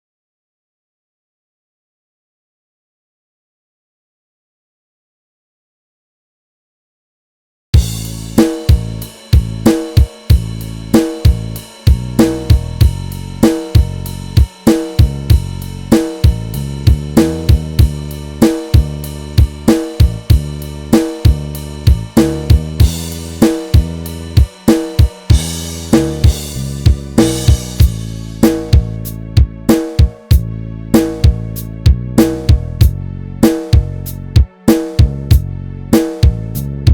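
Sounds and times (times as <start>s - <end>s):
drum kit beat: 7.8s - 36.9s
low bass notes: 7.8s - 36.9s.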